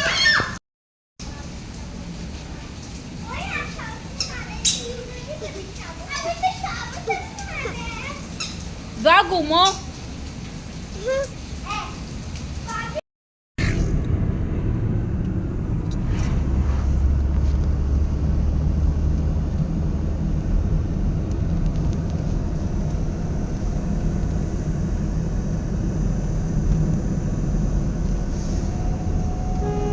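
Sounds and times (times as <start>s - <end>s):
vehicle engine rumbling: 13.6s - 29.9s.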